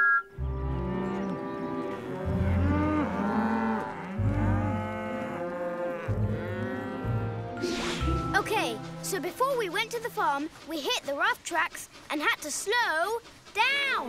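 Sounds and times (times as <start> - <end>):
cows mooing: 0.5 - 7.6.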